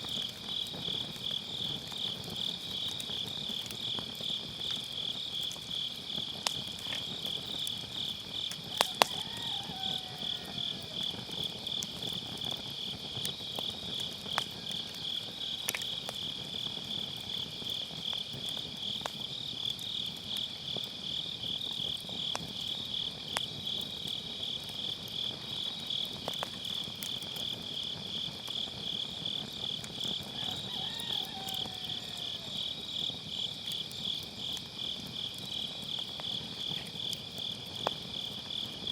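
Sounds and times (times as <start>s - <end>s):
insects trilling: 0.0s - 38.9s
wood fire crackling and popping: 0.0s - 38.9s.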